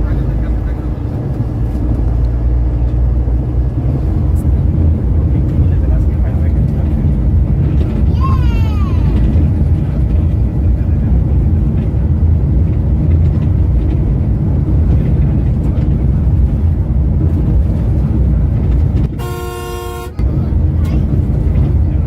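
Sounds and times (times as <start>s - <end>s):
coach engine and road rumble: 0.0s - 22.0s.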